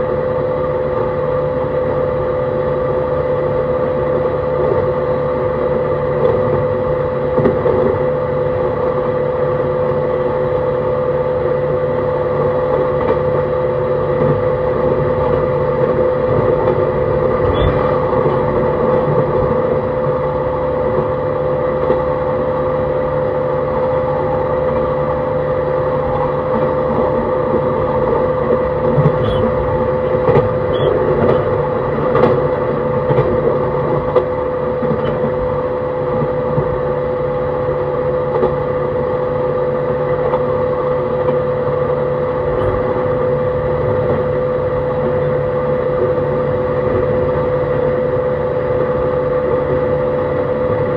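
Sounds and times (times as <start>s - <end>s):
train running rumble: 0.0s - 50.9s
wheels clicking on rail joints: 26.1s - 35.4s.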